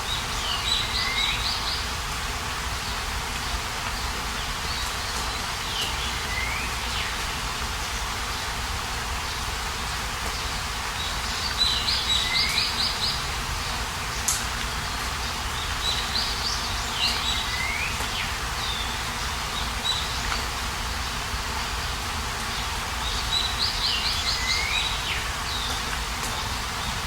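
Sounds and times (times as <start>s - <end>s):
birds chirping and trilling: 0.0s - 2.0s, 10.3s - 27.0s
outdoor background hiss: 0.0s - 27.0s.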